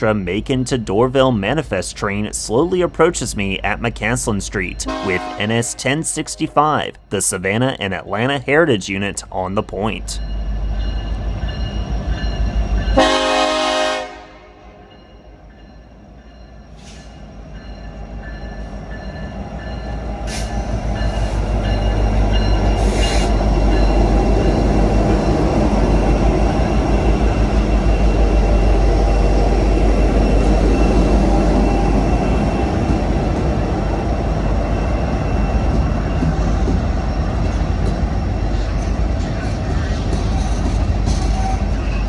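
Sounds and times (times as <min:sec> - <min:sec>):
rail clicks: 0:00.0 - 0:13.3, 0:16.3 - 0:42.0
diesel locomotive rumble: 0:00.0 - 0:42.0
high wheel squeal: 0:19.8 - 0:32.9.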